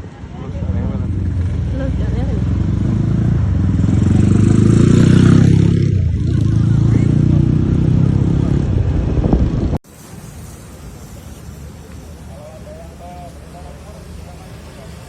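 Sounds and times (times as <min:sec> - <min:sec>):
loud motorcycle exhaust throbbing: 0:00.6 - 0:09.8.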